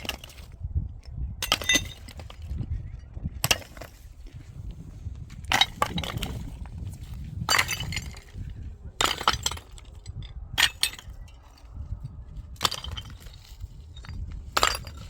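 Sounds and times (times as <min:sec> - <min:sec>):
hard materials clattering: 0:00.0 - 0:00.5, 0:01.4 - 0:02.7, 0:03.4 - 0:04.4, 0:05.3 - 0:11.7, 0:12.5 - 0:15.0
steady low rumble: 0:00.0 - 0:15.0.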